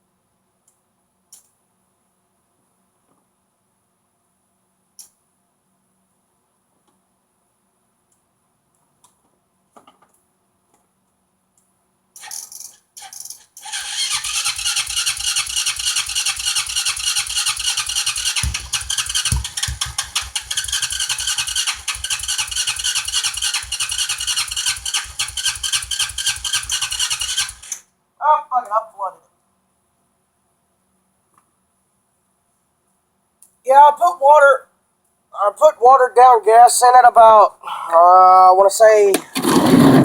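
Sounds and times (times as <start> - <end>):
engine cranking on electric starter: 12.2 - 27.8, 39.2 - 40.0
heavy thumps: 18.2 - 20.7, 39.2 - 40.0.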